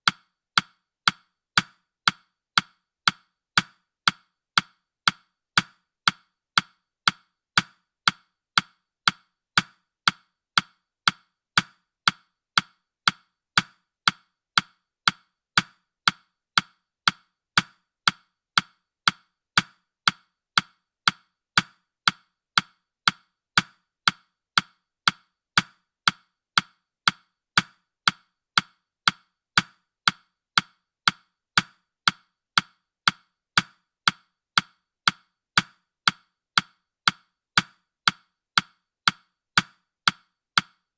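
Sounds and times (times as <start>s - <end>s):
clock ticking: 0.0s - 40.9s.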